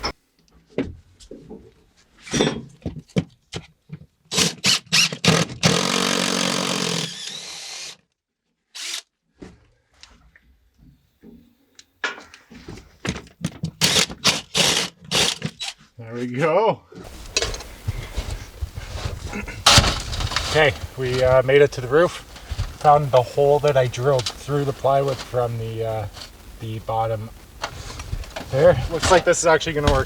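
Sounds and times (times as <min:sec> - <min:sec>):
power drill boring: 0:04.3 - 0:08.0, 0:08.8 - 0:09.0, 0:13.8 - 0:15.7.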